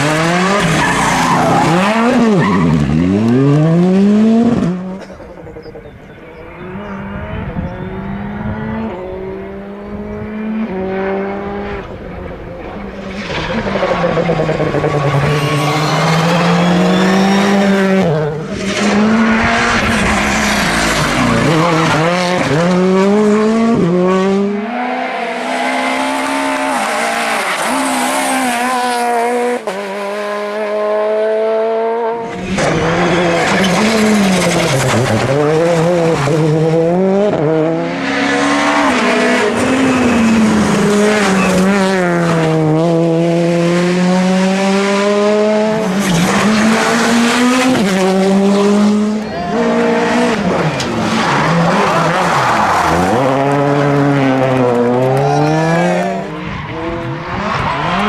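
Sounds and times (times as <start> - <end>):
rally car engines revving: 0.0 - 58.0
tyre squeal: 14.9 - 17.8, 32.6 - 35.0.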